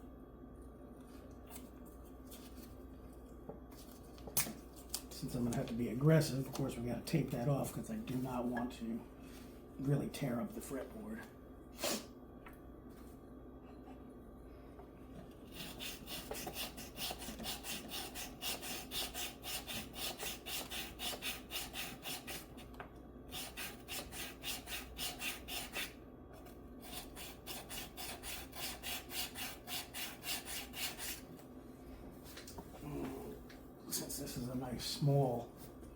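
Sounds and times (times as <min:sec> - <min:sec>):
metal file scraping frets: 0:15.5 - 0:22.4, 0:23.3 - 0:25.9, 0:26.8 - 0:31.2.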